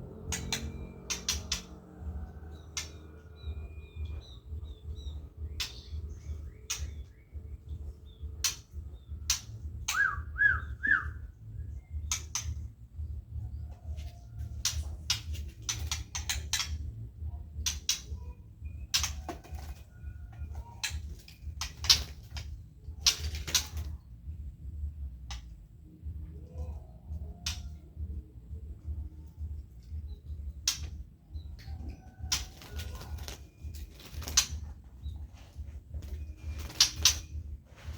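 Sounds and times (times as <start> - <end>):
bird chirping: 0.0 - 23.2.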